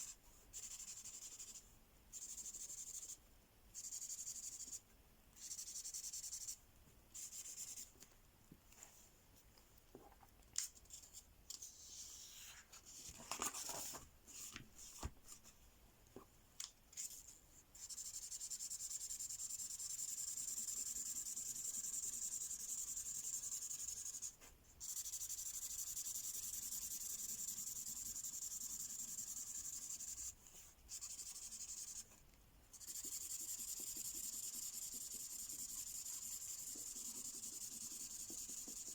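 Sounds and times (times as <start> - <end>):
pen scratching on paper: 19.5 - 30.3, 30.9 - 32.1, 32.7 - 38.9.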